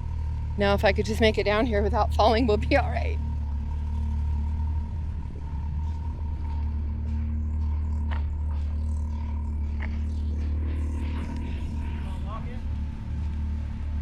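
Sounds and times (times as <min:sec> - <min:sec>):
off-road vehicle engines droning: 0:00.0 - 0:14.0.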